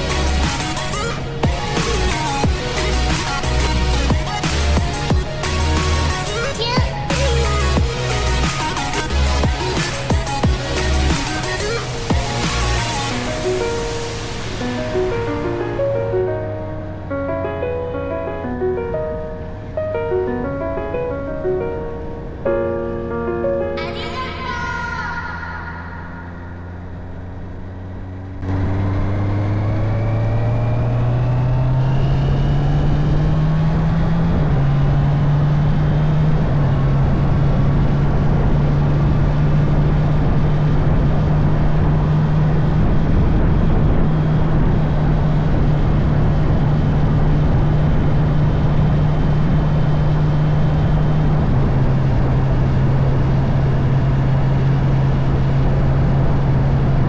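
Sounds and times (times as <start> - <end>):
wind and road rush: 0.0 - 22.7, 23.8 - 57.0
motorcycle engine accelerating: 26.5 - 57.0.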